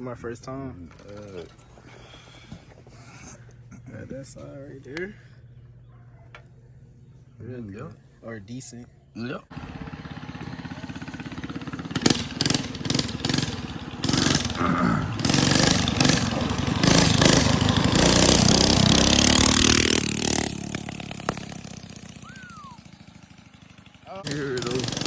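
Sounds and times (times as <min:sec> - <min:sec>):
small engine revving: 0:09.5 - 0:25.0.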